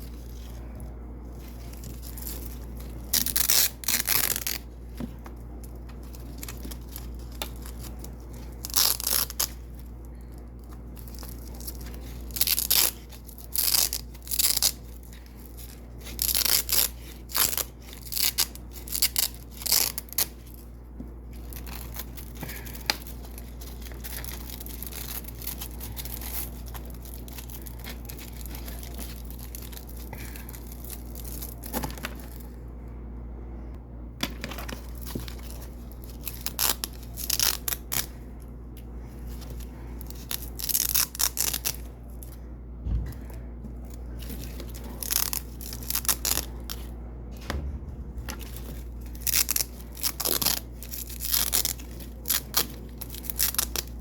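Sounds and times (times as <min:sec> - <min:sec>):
velcro ripping: 0:01.8 - 0:04.7, 0:06.3 - 0:09.6, 0:11.0 - 0:20.6, 0:40.1 - 0:41.9, 0:48.4 - 0:54.0.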